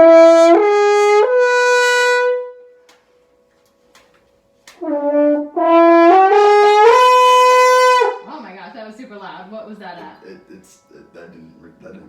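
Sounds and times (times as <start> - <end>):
french horn slurring notes: 4.8 - 8.3.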